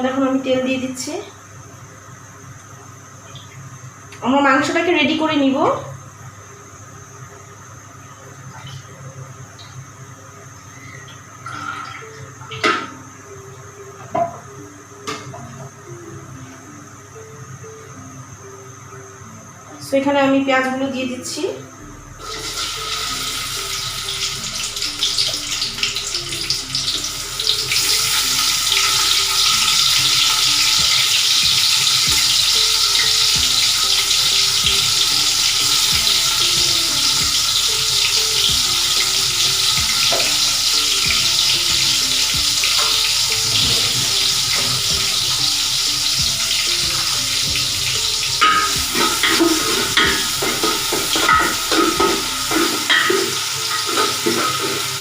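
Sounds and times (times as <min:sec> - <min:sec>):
onions sizzling in hot oil: 0:20.9 - 0:55.0.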